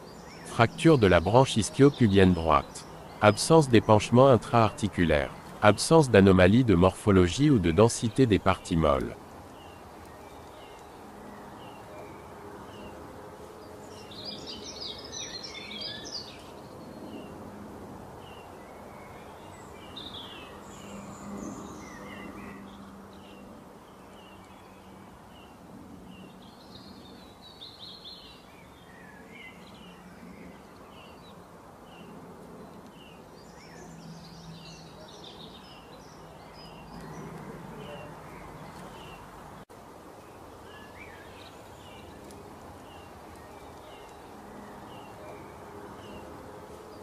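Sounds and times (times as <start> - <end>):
background hiss: 0.0 - 11.8
birds chirping and twittering: 0.0 - 47.0.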